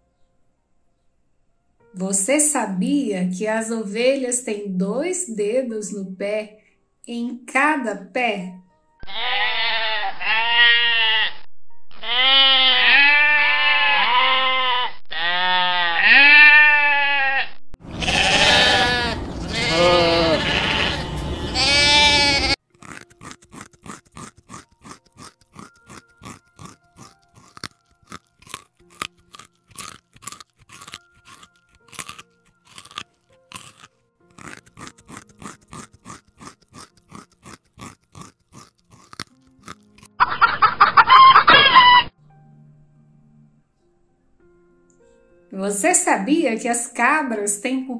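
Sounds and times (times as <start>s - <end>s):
sheep bleating: 9.0s - 22.6s
rabbit crunching a carrot: 21.6s - 40.2s.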